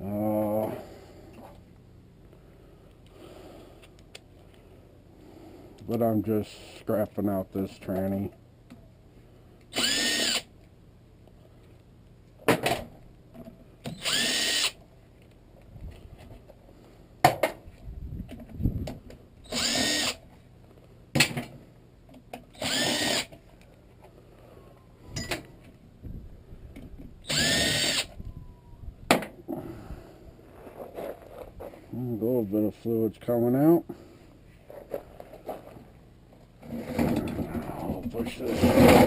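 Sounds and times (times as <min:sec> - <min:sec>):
power drill spinning: 0:09.7 - 0:10.5, 0:13.9 - 0:14.8, 0:19.4 - 0:20.2, 0:22.5 - 0:23.3, 0:27.2 - 0:28.2.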